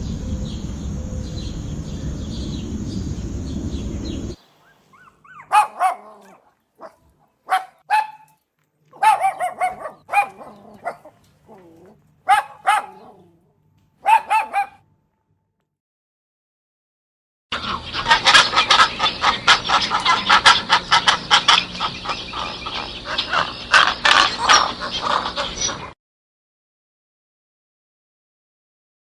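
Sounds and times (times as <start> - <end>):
steady noise: 0.0 - 4.4
dog barking: 4.9 - 8.3, 9.0 - 11.7, 12.3 - 13.4, 14.0 - 14.8.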